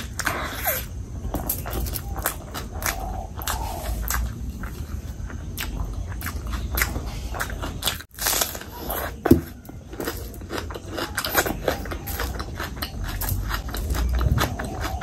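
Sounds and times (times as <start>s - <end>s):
wet chewing and mouth smacks: 1.4s - 9.2s.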